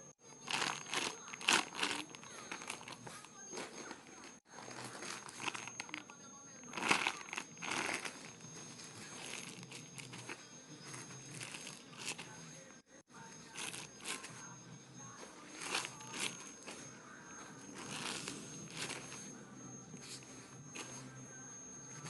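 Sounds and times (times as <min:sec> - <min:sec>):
plastic crinkling: 0:00.4 - 0:12.3, 0:13.5 - 0:14.3, 0:15.4 - 0:16.9, 0:17.7 - 0:19.3.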